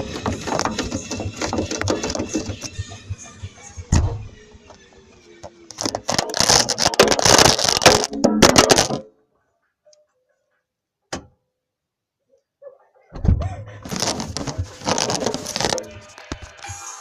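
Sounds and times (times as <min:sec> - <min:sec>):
camera knocking in washing machine: 0:00.0 - 0:03.0.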